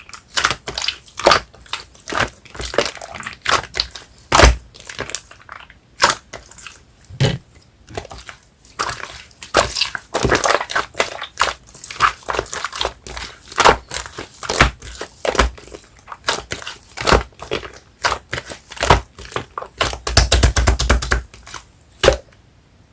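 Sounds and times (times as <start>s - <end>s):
hands squishing sticky slime: 0.0s - 22.3s.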